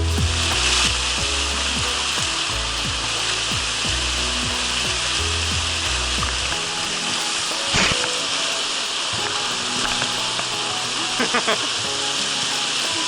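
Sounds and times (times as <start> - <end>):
bass notes: 0.0 - 6.6
music with drum beat: 0.0 - 13.0
stream water rushing: 0.0 - 13.0.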